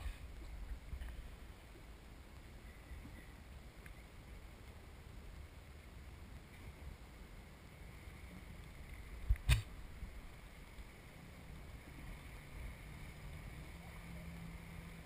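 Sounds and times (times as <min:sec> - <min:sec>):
faint low hum: 0:00.0 - 0:15.0
muffled jet ski rumble: 0:06.6 - 0:15.0.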